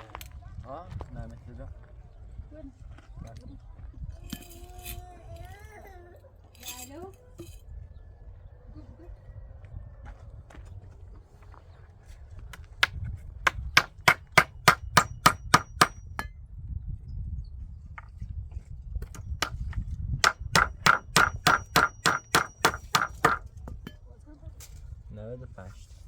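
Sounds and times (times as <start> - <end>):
hammering with metallic ring: 13.5 - 16.4, 19.0 - 24.0.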